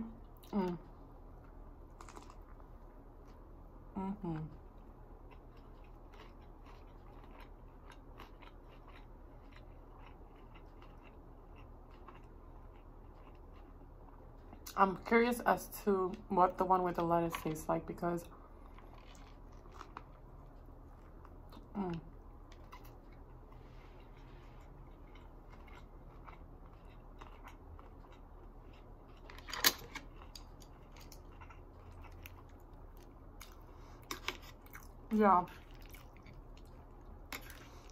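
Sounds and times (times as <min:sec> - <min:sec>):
steady low hum: 0:00.0 - 0:37.9
mouth chewing food: 0:04.4 - 0:14.8, 0:18.3 - 0:37.9.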